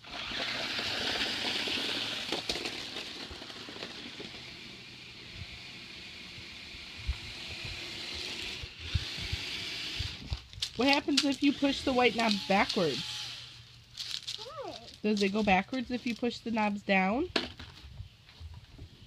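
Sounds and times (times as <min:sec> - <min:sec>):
toy car motor whirring: 0:00.0 - 0:13.6.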